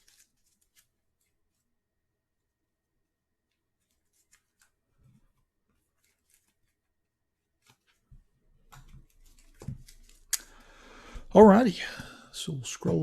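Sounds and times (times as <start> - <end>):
trading cards clicking and rustling: 0.0 - 0.9, 8.7 - 10.6.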